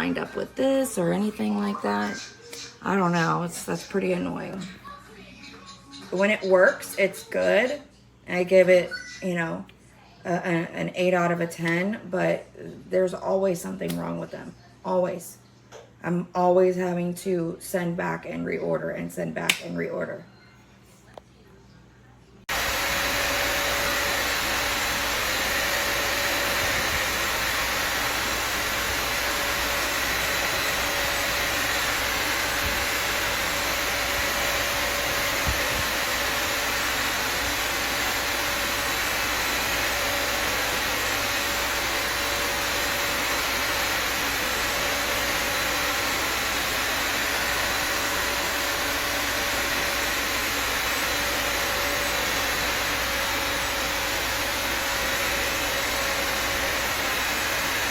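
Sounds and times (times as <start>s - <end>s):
vacuum cleaner running: 0.0s - 2.2s, 22.5s - 57.9s.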